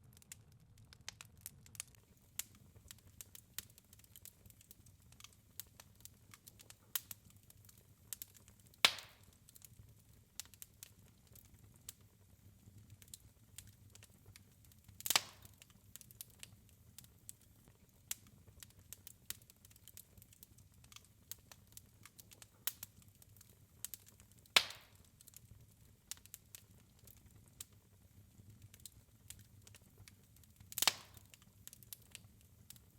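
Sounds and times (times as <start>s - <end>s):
wood fire crackling: 0.0s - 32.9s
loud fire pops: 8.1s - 9.4s, 15.0s - 16.6s, 24.6s - 25.1s, 30.7s - 32.8s.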